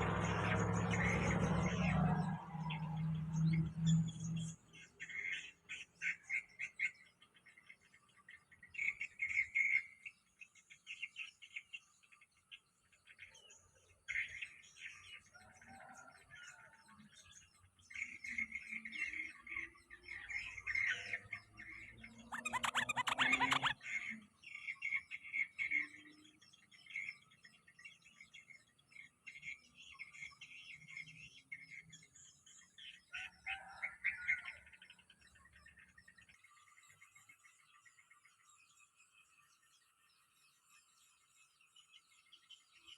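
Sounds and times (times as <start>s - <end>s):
bulbuls chirping: 0.0s - 15.1s, 17.3s - 39.6s
fast ticking bird notes: 18.0s - 26.0s.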